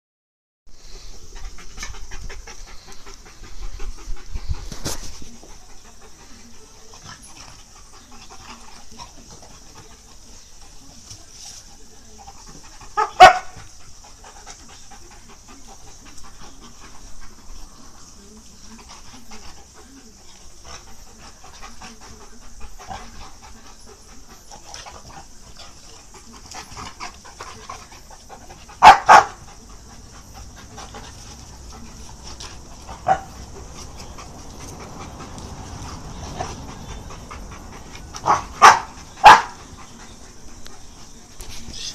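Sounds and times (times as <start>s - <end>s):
dogs panting: 0.9s - 41.9s
dogs barking: 13.0s - 13.6s, 28.8s - 29.5s, 32.9s - 35.3s, 36.8s - 39.7s.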